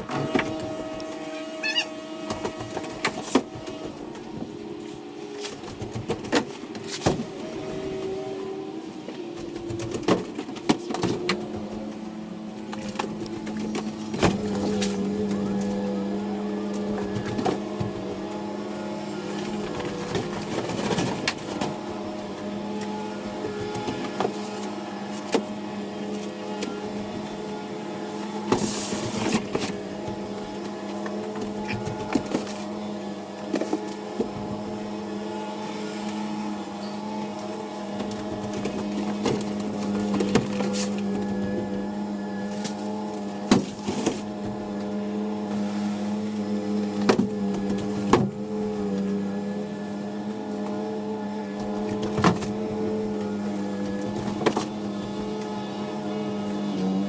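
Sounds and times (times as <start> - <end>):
body and cargo rattling: 0.0 - 7.4
truck engine drone: 0.0 - 57.0.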